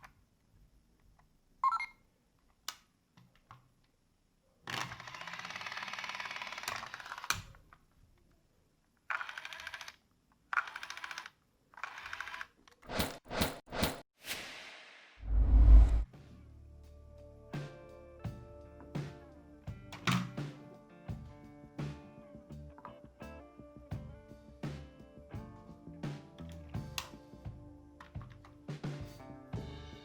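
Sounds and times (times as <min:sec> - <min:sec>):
toy train motor gear rattling: 0:04.7 - 0:07.4, 0:09.1 - 0:12.8.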